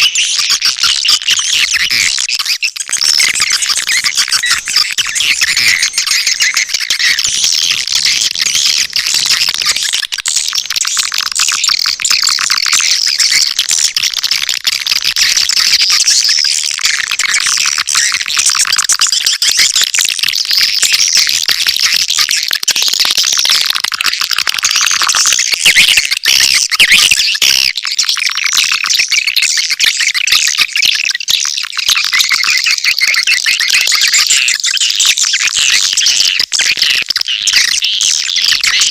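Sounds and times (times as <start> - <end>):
swiftlets twittering chirps: 0.0 - 14.0, 32.1 - 38.9.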